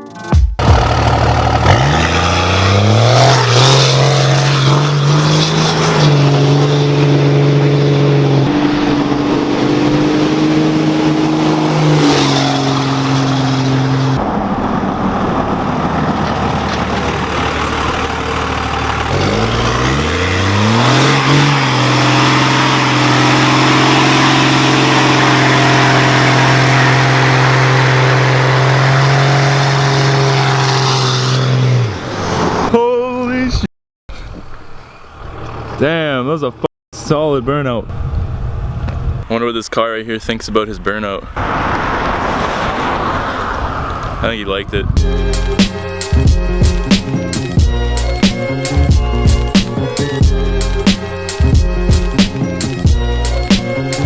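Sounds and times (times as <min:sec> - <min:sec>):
diesel truck engine revving: 0:00.6 - 0:32.7, 0:41.2 - 0:54.0.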